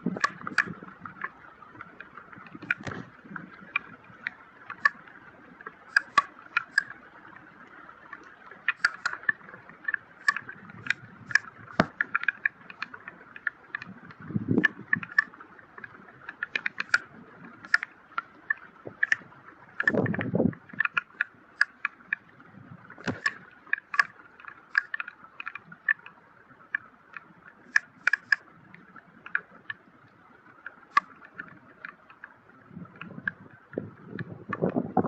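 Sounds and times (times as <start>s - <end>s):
drops and splashes ticking: 0.0s - 35.0s
wind gust on microphone: 14.1s - 15.1s, 19.9s - 20.7s, 32.8s - 35.0s.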